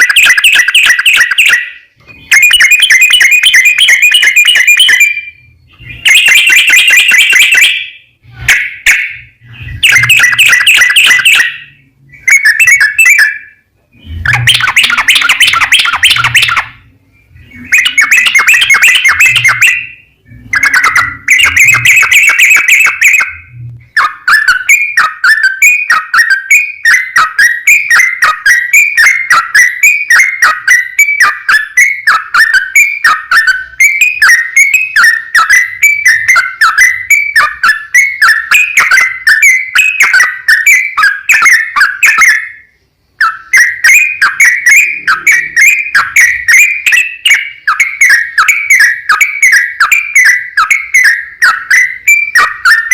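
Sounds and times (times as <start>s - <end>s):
bulbul singing: 0.0s - 52.9s.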